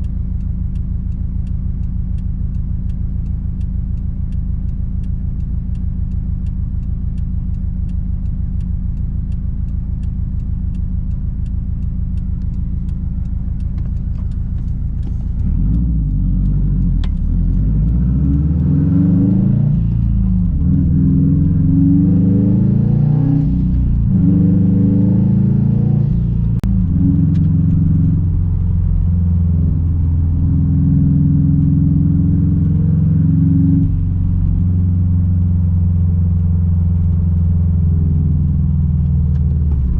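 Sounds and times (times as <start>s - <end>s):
car exhaust rumbling: 0.0s - 39.9s
light regular ticking: 0.0s - 39.9s.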